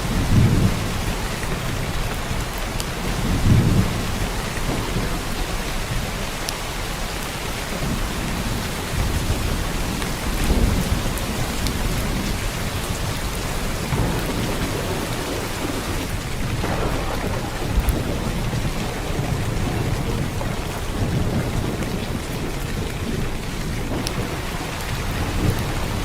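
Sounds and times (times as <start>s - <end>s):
heavy rain: 0.0s - 26.0s.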